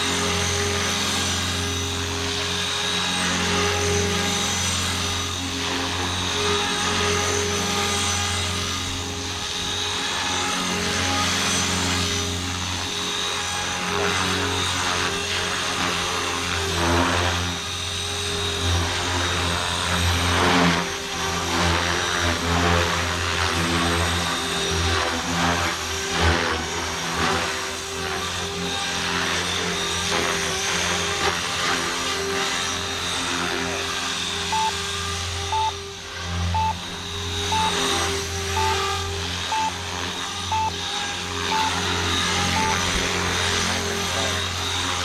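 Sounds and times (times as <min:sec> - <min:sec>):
rc helicopter motor and rotors whining: 0:00.0 - 0:35.2.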